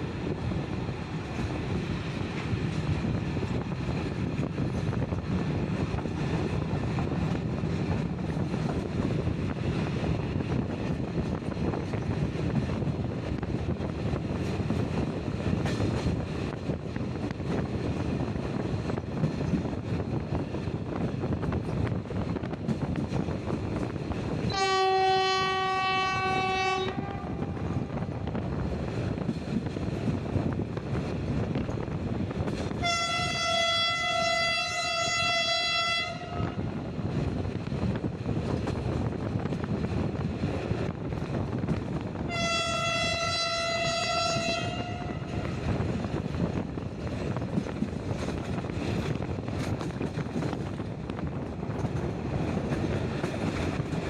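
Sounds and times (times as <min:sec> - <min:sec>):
train rumbling: 0:00.0 - 0:54.0
wind rushing past window: 0:00.0 - 0:54.0
locomotive horn blasts: 0:24.5 - 0:27.6, 0:32.8 - 0:36.6, 0:42.3 - 0:45.5.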